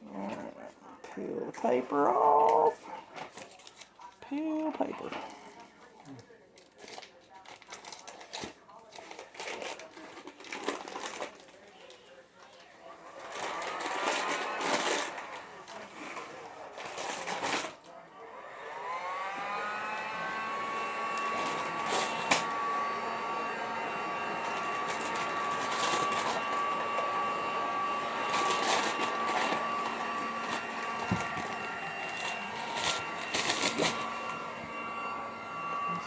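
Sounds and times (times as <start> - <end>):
heat gun fan whine: 18.4 - 36.0.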